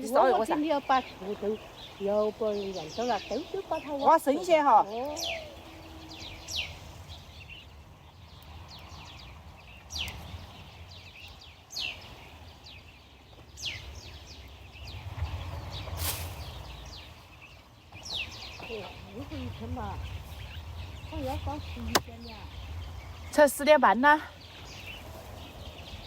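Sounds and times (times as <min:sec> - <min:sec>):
bird whistling call: 0:02.6 - 0:06.8
low steady rumble: 0:14.0 - 0:26.0.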